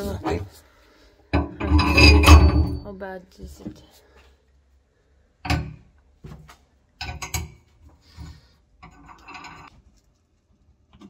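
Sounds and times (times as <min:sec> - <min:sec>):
rattling scrape: 0:01.4 - 0:02.9, 0:08.1 - 0:09.7.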